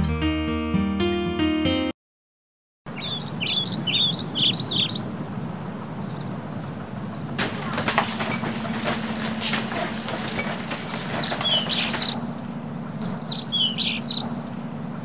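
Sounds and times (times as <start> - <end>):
small bird chirping: 2.9 - 15.0
steady background noise: 2.9 - 15.0
footsteps and knocks on floor: 7.4 - 12.2.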